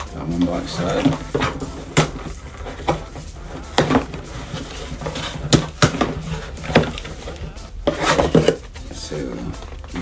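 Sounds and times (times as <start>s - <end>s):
cardboard box pried open: 0.7s - 8.7s.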